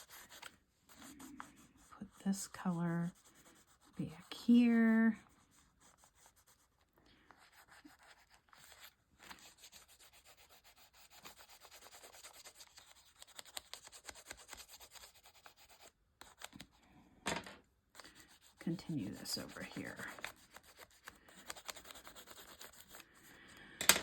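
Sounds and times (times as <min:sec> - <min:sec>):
wax pastel scratching on paper: 0:00.0 - 0:16.8, 0:17.9 - 0:23.4.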